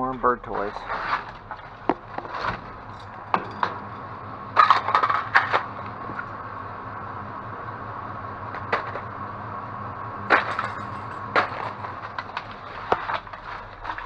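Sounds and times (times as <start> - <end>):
items clattering in a dumpster: 0.0 - 6.4, 8.5 - 9.2, 10.3 - 14.0
steady hum: 0.0 - 14.0.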